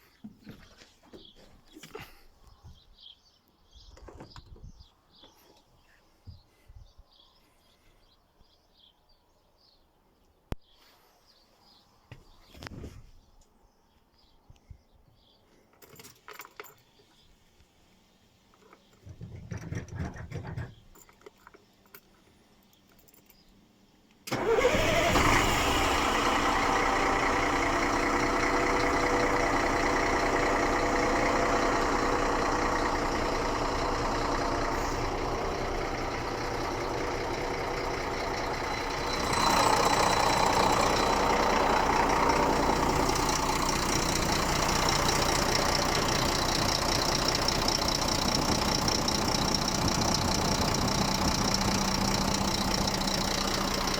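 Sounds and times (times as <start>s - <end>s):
diesel truck engine idling: 24.3s - 53.9s.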